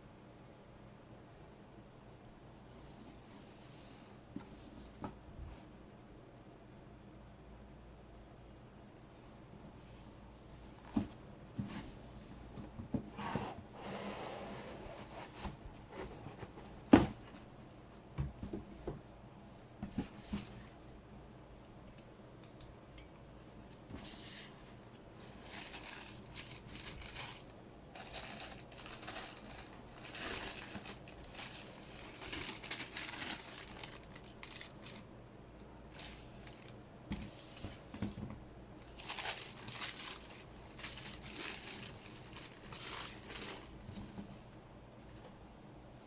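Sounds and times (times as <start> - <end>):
paper crinkling and rustling: 23.9 - 35.1, 35.9 - 44.4.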